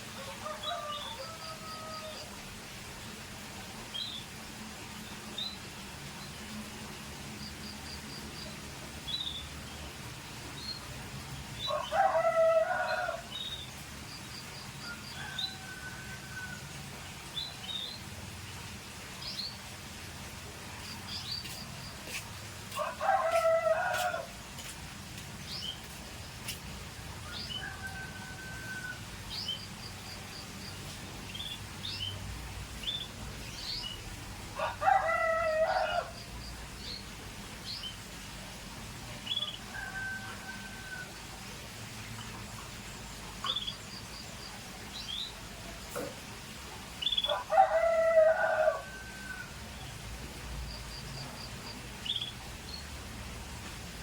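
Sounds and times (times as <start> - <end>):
rooster crowing: 0.2 - 2.3, 11.7 - 13.3, 22.7 - 24.4, 27.2 - 29.0, 34.6 - 36.3, 39.7 - 41.2, 47.3 - 49.6.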